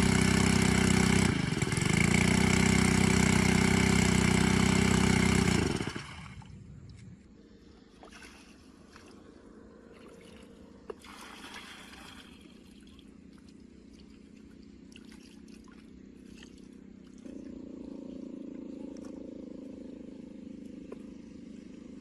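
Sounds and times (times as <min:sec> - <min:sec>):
small pump engine running: 0:00.0 - 0:06.8, 0:11.0 - 0:22.0
low engine sound: 0:00.0 - 0:22.0
water trickling and splashing: 0:08.0 - 0:09.3, 0:09.9 - 0:17.5.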